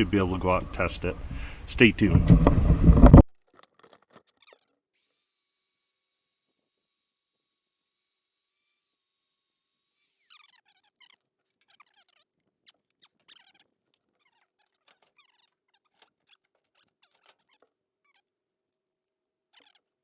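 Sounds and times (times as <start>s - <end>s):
faint steady hum: 0.0s - 3.3s
small birds chirping: 4.2s - 18.3s, 19.5s - 20.0s.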